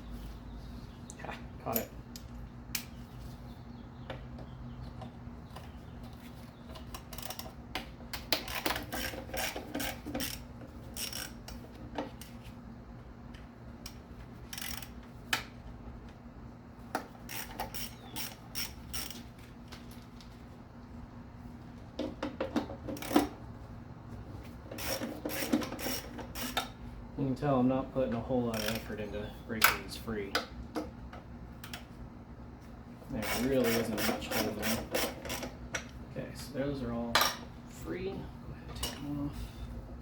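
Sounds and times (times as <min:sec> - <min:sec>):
steady low hum: 0:00.0 - 0:40.0
socket ratchet clicking: 0:17.3 - 0:19.2, 0:24.8 - 0:26.7.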